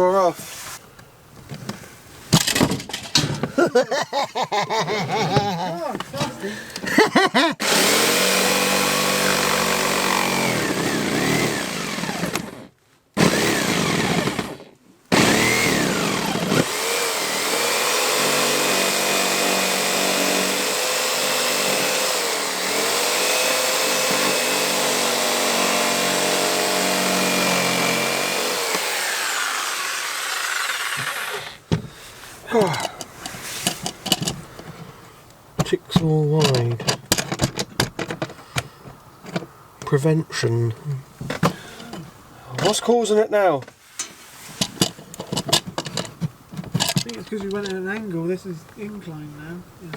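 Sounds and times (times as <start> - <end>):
electric jigsaw cutting: 7.6 - 31.6.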